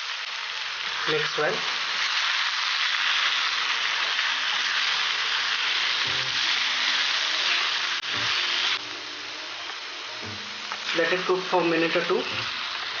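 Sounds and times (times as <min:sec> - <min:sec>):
curry sizzling in a pan: 0:00.0 - 0:13.0
faint background music: 0:05.4 - 0:13.0.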